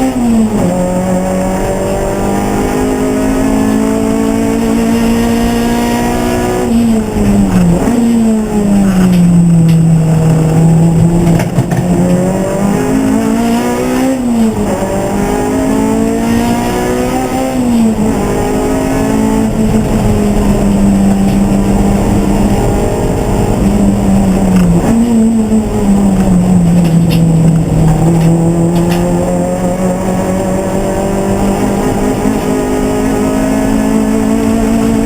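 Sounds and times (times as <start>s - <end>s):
race car engine revving: 0.0s - 35.0s.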